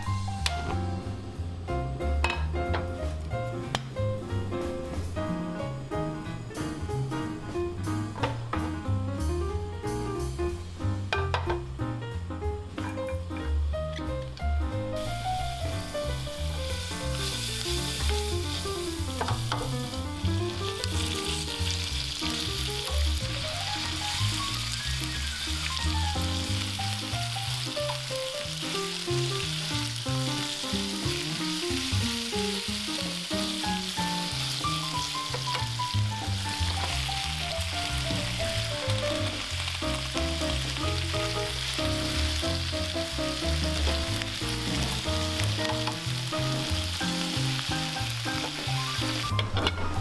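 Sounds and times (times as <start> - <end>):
music with plucked melody: 0.0 - 50.0
meat stir-frying in oil: 15.0 - 49.4.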